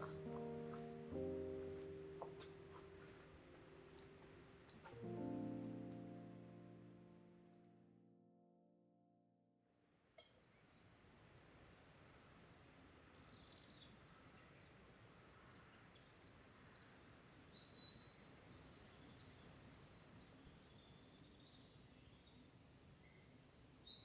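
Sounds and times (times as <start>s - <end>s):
faint outdoor background: 0.0s - 24.0s
songbirds chirping and trilling: 10.4s - 24.0s.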